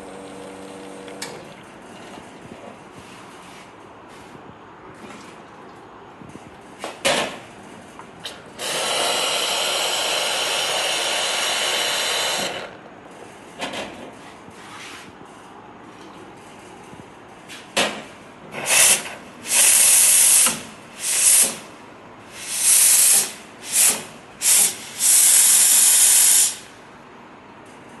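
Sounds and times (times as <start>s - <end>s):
steam wand hissing: 8.6s - 12.6s, 18.6s - 21.6s, 22.3s - 26.6s.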